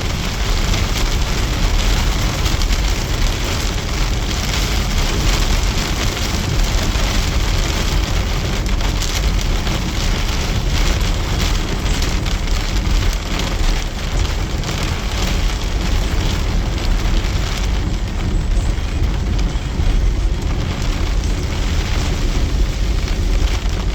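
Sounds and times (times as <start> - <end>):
heavy rain pouring: 0.0 - 23.9.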